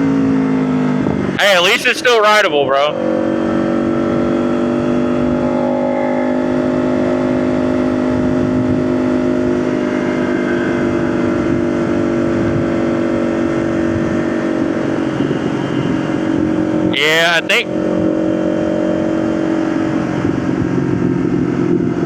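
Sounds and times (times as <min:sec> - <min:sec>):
motorcycle engine running: 0:03.0 - 0:16.9, 0:17.6 - 0:22.0
rumbling wind noise: 0:06.8 - 0:17.0, 0:17.8 - 0:22.0.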